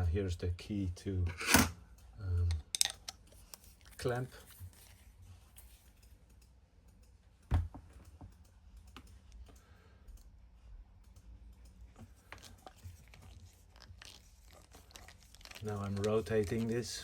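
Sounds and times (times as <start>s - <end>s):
small metallic clicks: 1.4s - 10.4s.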